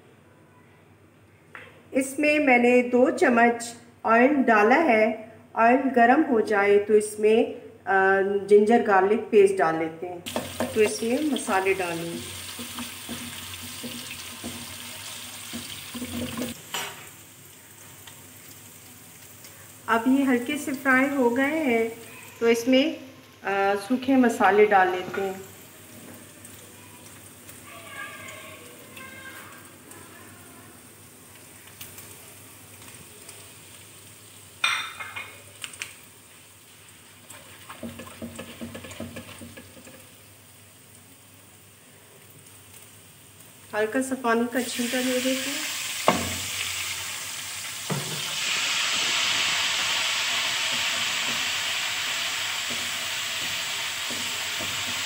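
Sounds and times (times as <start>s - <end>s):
spoon stirring and scraping pan: 10.3s - 11.2s, 12.2s - 17.0s, 37.2s - 40.2s, 50.6s - 55.0s
paste sizzling in hot oil: 10.3s - 34.7s, 36.1s - 41.7s, 42.3s - 55.0s
spatula scraping pan: 37.3s - 40.1s.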